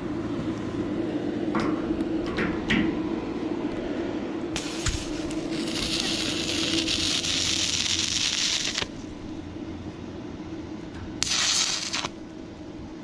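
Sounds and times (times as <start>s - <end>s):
steady low hum: 0.0s - 13.0s
welding arc crackling: 4.6s - 9.3s, 11.2s - 12.2s.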